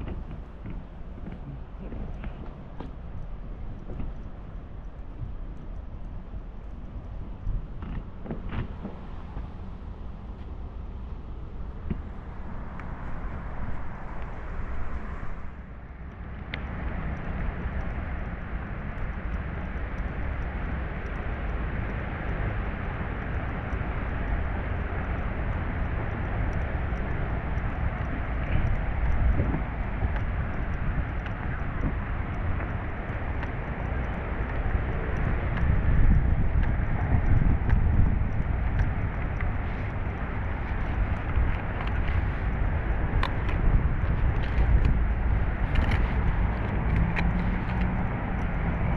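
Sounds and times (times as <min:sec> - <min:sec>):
low outdoor background rumble: 0:00.0 - 0:48.9.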